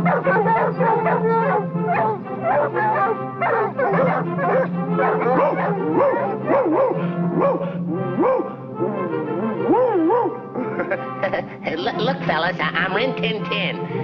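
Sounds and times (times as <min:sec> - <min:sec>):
cartoon dogs barking: 0:00.0 - 0:08.6, 0:09.6 - 0:10.5
orchestral music: 0:00.0 - 0:14.0.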